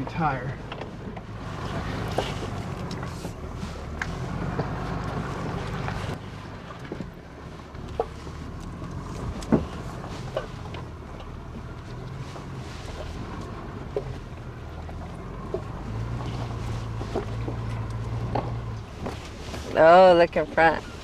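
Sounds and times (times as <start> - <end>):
low engine rumble: 0.0 - 21.0
truck squeaks and knocks: 7.8 - 19.8.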